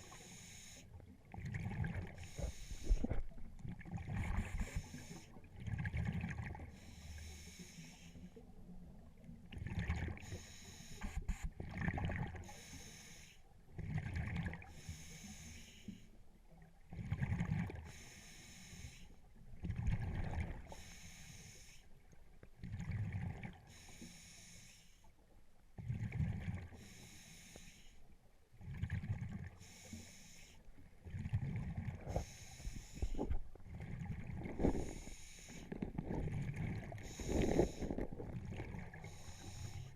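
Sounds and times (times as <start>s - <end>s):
hissing inhale through regulator: 0.0s - 0.9s, 2.0s - 3.3s, 4.2s - 5.4s, 6.7s - 8.4s, 10.2s - 11.4s, 12.4s - 13.5s, 14.6s - 16.2s, 17.8s - 19.2s, 20.6s - 22.0s, 23.7s - 25.1s, 26.7s - 28.2s, 29.6s - 30.8s, 32.0s - 33.5s, 34.5s - 39.9s
exhaled bubbles rumbling: 1.3s - 4.9s, 5.5s - 6.7s, 9.4s - 10.2s, 11.6s - 12.4s, 19.6s - 20.7s, 28.6s - 29.6s, 31.1s - 32.3s, 32.9s - 39.7s.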